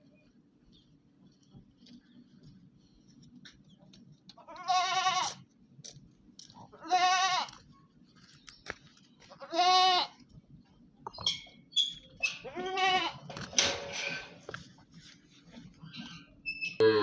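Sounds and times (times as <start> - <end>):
animal bleating: 4.4 - 5.4, 6.7 - 7.6, 9.4 - 10.2, 12.4 - 13.3, 16.8 - 17.0.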